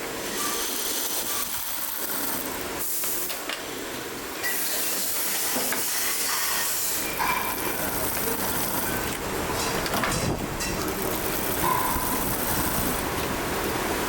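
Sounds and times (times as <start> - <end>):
factory machinery hiss: 4.4 - 9.8.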